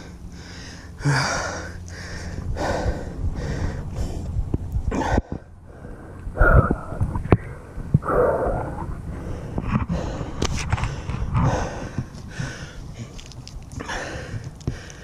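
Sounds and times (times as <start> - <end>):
man gasping for breath: 0.3 - 4.3, 8.0 - 13.2, 13.8 - 15.0.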